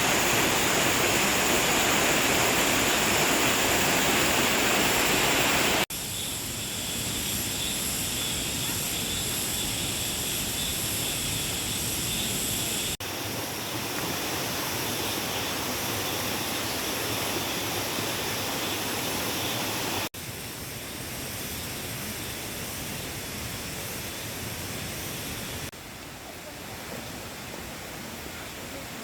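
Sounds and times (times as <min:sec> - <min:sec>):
stream rushing: 0:00.0 - 0:05.9, 0:13.0 - 0:20.1, 0:25.4 - 0:29.0.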